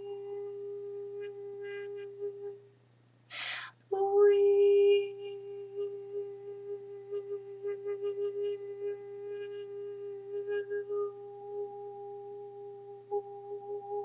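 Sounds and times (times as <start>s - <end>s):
woman inhaling: 3.3s - 3.8s.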